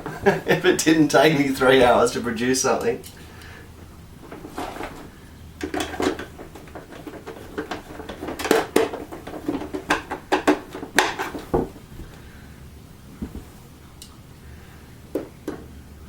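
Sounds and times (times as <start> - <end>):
plastic parts clicking and clattering: 4.3 - 12.2.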